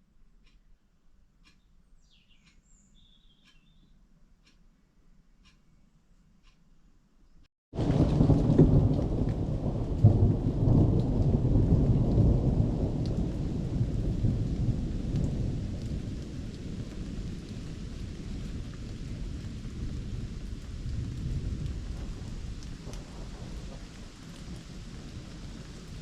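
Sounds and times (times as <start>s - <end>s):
steady rain falling: 7.8s - 26.0s
thunder rumbling: 7.8s - 26.0s.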